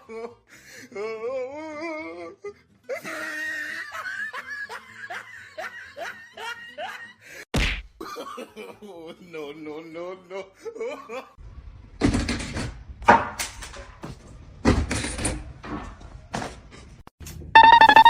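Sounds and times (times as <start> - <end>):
person laughing hard: 2.9 - 7.2.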